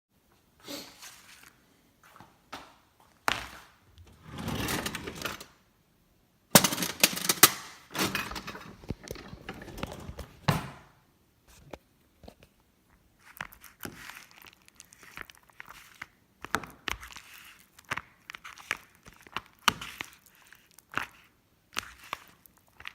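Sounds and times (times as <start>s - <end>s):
rustling: 1.0s - 1.6s.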